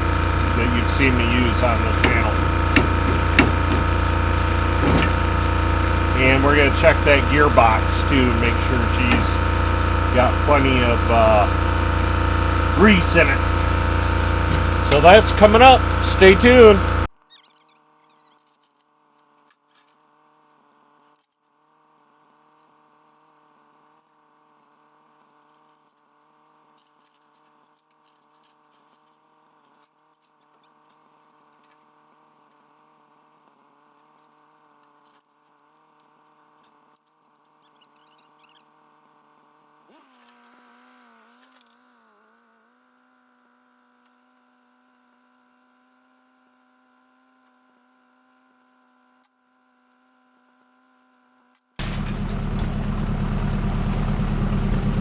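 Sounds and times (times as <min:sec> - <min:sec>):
engine humming: 0:00.0 - 0:18.5, 0:51.8 - 0:55.0.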